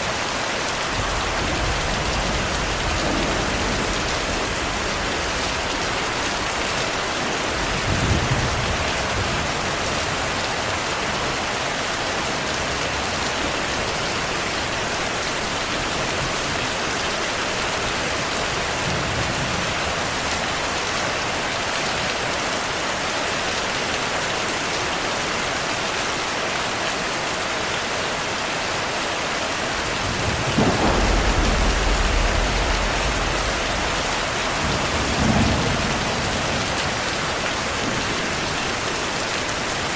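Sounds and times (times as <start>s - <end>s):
heavy rain: 0.0s - 39.9s
rolls of thunder: 1.0s - 6.0s, 29.9s - 37.4s.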